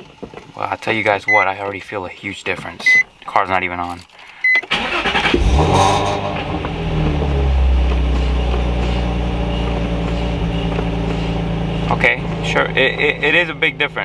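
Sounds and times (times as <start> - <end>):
car engine starting and idling: 4.5 - 14.0.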